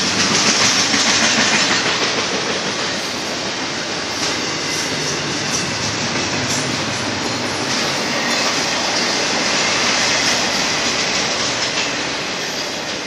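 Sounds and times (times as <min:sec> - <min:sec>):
steel wheels rushing on rail: 0:00.0 - 0:13.0.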